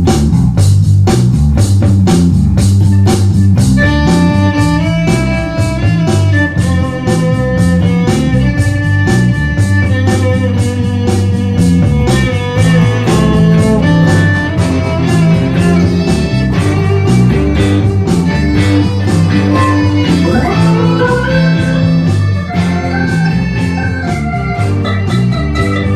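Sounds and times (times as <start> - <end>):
instrumental band music: 0.0 - 25.9.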